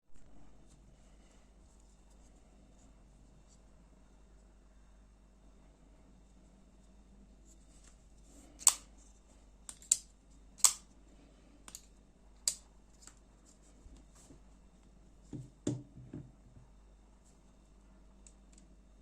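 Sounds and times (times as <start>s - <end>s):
folding knife clicks: 8.6s - 8.8s, 9.7s - 10.8s.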